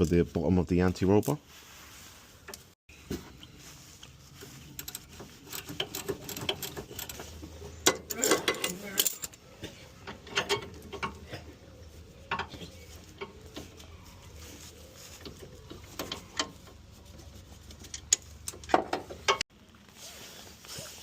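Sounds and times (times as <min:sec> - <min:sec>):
hand tools clicking and tapping: 0:04.8 - 0:09.4, 0:10.0 - 0:11.4, 0:12.2 - 0:13.9, 0:15.2 - 0:16.8, 0:17.6 - 0:19.4.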